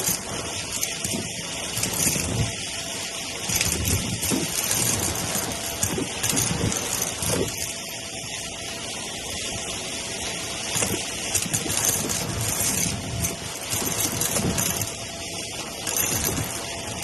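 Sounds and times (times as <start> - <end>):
beads crunching and rattling: 0.0 - 2.6, 3.3 - 7.8, 10.7 - 17.0
vacuum cleaner motor hiss: 0.0 - 17.0.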